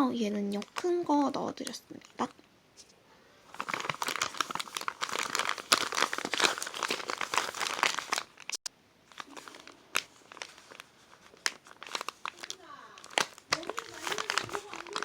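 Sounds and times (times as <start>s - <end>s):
plastic packaging crinkling: 3.5s - 15.0s.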